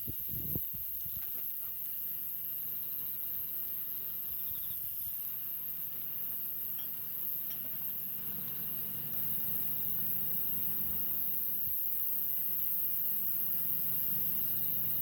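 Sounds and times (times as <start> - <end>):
insects chirping: 0.0 - 15.0
meat sizzling on grill: 5.5 - 15.0.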